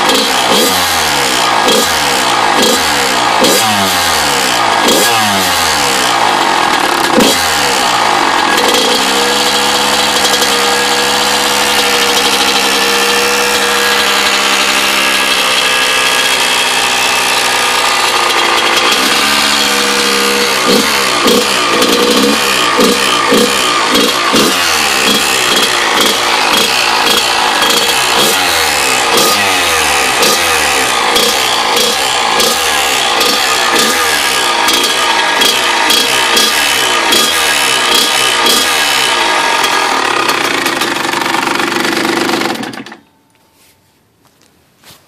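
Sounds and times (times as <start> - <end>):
two-stroke engine revving: 0.0 - 43.0
strange engine noise: 0.0 - 43.1.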